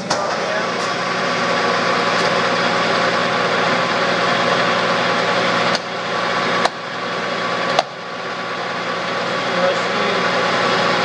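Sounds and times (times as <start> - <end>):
lathe gears humming: 0.0 - 11.0.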